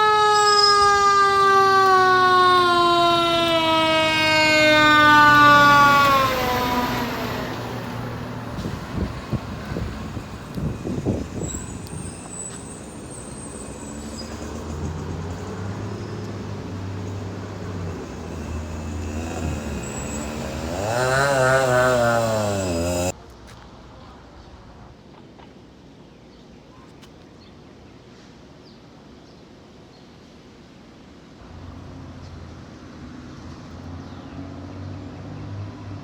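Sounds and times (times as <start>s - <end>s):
fire truck siren wailing: 0.0s - 23.1s
truck engine running: 3.4s - 23.1s
engine knocks: 14.1s - 23.1s.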